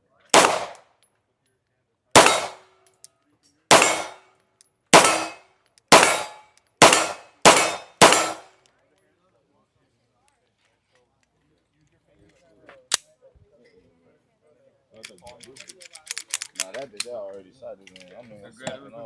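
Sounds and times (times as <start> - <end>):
gunshots: 0.4 - 0.8, 2.2 - 2.7, 3.7 - 4.2, 5.0 - 8.5.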